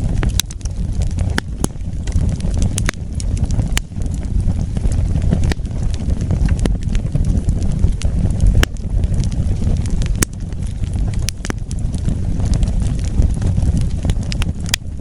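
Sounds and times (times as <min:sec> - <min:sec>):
fire crackling and popping: 0:00.0 - 0:15.0
low rumble of flame: 0:00.0 - 0:15.0.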